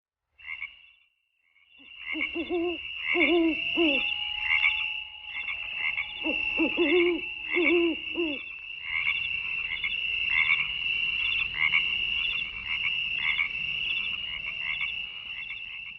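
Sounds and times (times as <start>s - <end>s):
frogs croaking: 0.4s - 15.9s
low hooting calls: 1.8s - 12.6s
high-pitched trill: 2.2s - 8.6s.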